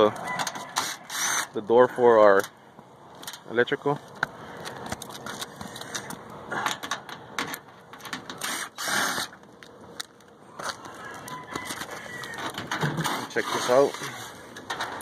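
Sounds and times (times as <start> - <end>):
metal scraping: 10.6 - 15.0.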